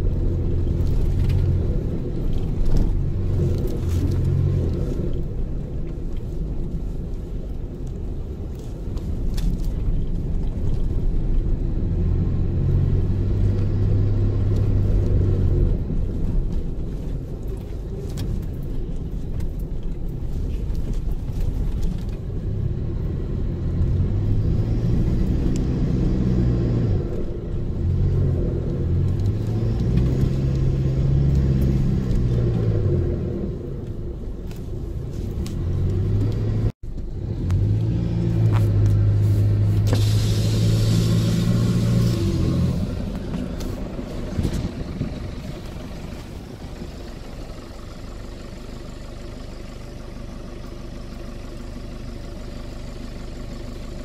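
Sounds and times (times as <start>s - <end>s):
vehicle engine revving and easing: 0.0s - 5.4s, 11.5s - 16.4s, 22.4s - 33.8s, 35.1s - 49.0s.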